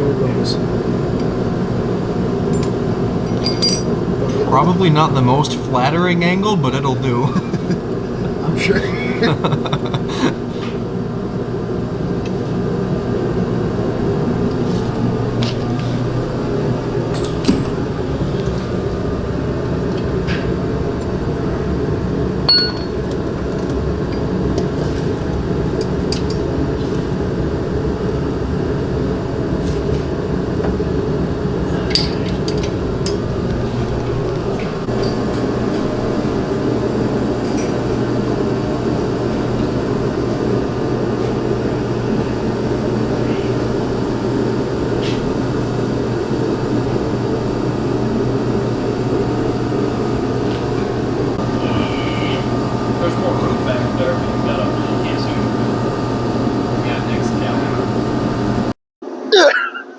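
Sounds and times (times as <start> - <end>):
steady low drone: 0.0 - 58.7
metal hand tools clinking: 2.6 - 4.3, 22.5 - 23.0.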